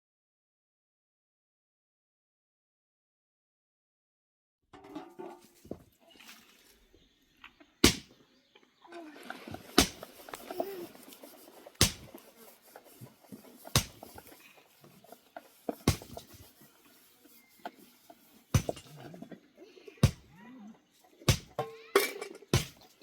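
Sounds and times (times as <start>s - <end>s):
sharp knocks: 7.8s - 8.1s, 9.8s - 10.0s, 11.8s - 12.2s, 13.8s - 14.2s, 15.8s - 16.2s, 18.6s - 18.8s, 20.0s - 20.3s, 21.3s - 21.6s.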